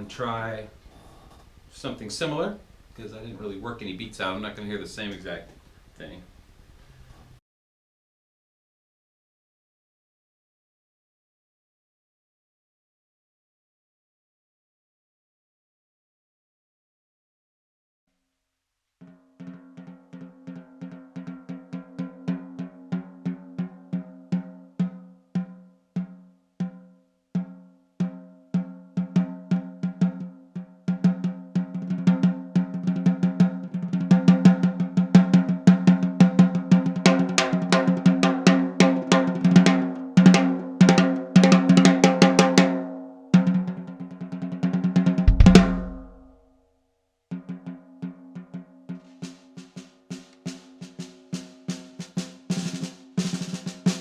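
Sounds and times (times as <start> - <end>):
snare drum played with sticks: 30.9 - 42.8, 45.0 - 46.3, 48.9 - 54.0
deep low drum thump: 45.3 - 46.3.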